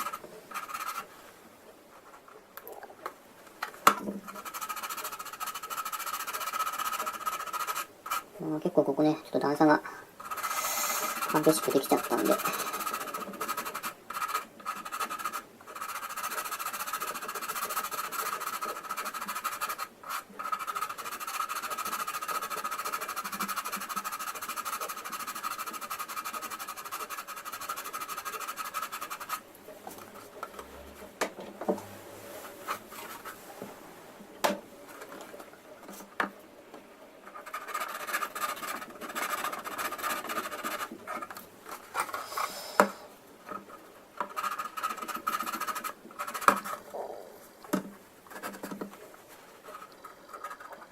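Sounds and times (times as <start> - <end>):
sandpaper rubbing on plastic: 0.0 - 1.2, 4.2 - 8.3, 10.2 - 29.4, 37.2 - 46.8, 48.3 - 49.0.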